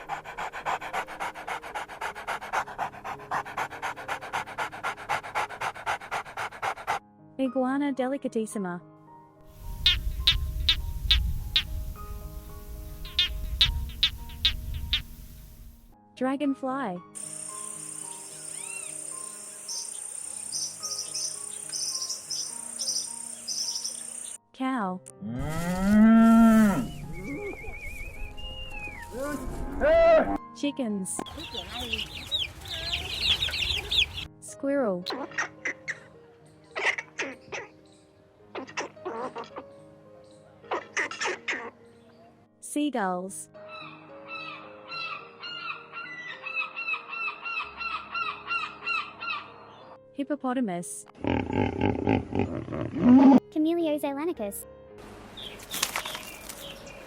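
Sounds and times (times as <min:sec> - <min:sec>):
dog panting: 0:00.0 - 0:07.0
insects chirping in trills: 0:09.6 - 0:15.8, 0:17.2 - 0:24.4.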